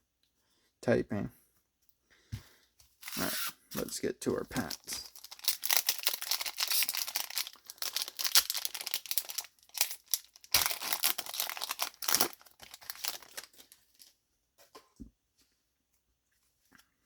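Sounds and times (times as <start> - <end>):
foil wrappers crinkling and tearing: 3.0 - 14.1.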